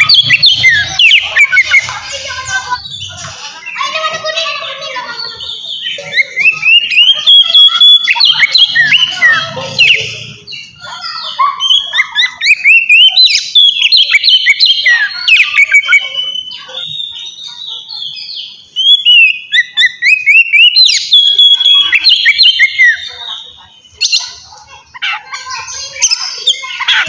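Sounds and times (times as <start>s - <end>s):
bird singing whistled notes: 5.6s - 10.7s, 11.7s - 17.2s, 18.1s - 23.1s.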